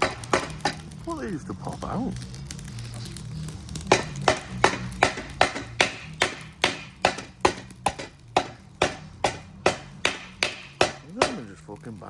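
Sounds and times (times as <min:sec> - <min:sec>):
hammer blows on metal: 0:03.9 - 0:11.4.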